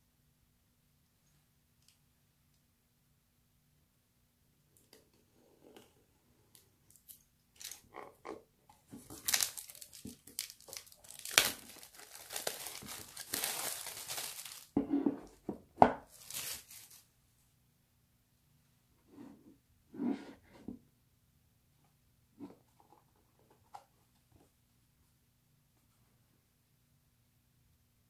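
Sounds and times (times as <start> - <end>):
packaging tearing and crinkling: 7.6 - 7.9, 9.0 - 14.8, 16.1 - 17.0.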